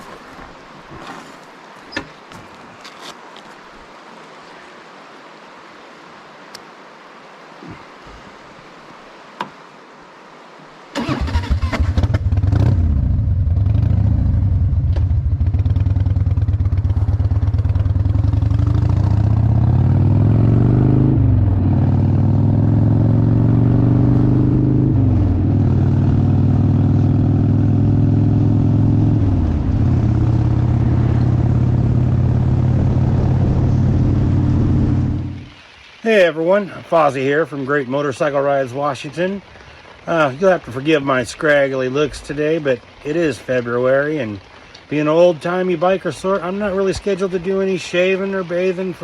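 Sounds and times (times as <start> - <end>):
motorcycle engine accelerating: 11.0 - 35.6.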